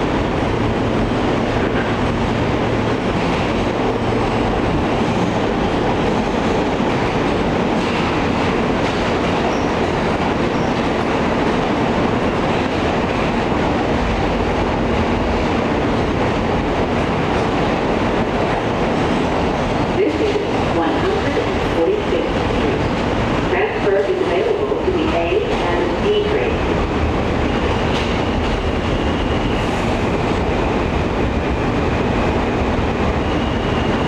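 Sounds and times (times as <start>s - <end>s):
subway wheels on rails rumbling: 0.0s - 34.0s.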